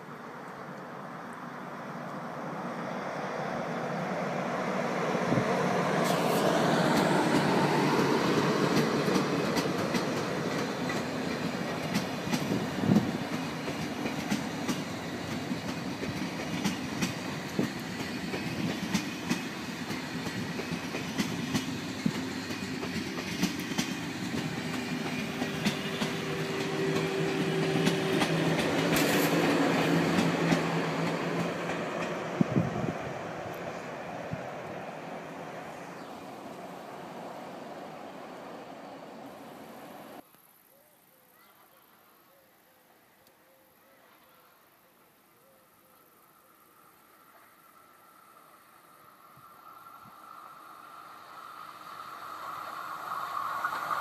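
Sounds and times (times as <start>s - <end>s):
high-speed train passing: 0.0s - 40.2s, 46.1s - 54.0s
wheels clacking over rails: 5.2s - 33.9s.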